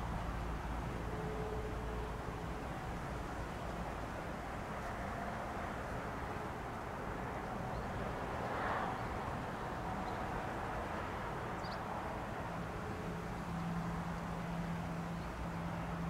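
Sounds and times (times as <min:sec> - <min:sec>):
low vehicle rumble: 0:00.0 - 0:16.0.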